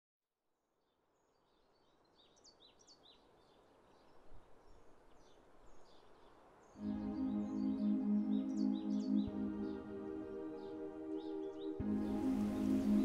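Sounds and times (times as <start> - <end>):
faint outdoor ambience: 0.5 - 13.0
songbirds chirping: 0.7 - 13.0.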